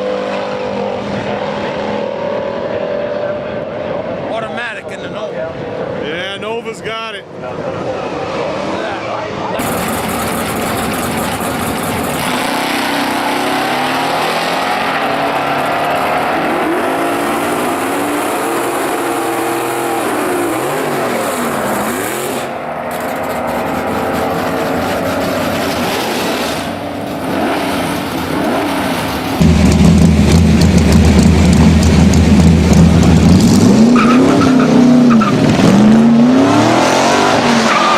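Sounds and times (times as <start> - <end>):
racing car engines at full throttle: 0.0 - 37.9
deep engine rumble: 9.4 - 16.0, 20.1 - 36.0.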